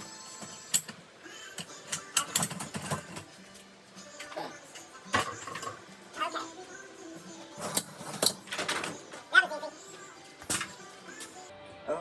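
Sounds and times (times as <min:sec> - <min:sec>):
dishwasher racks rattling: 0:07.6 - 0:09.5.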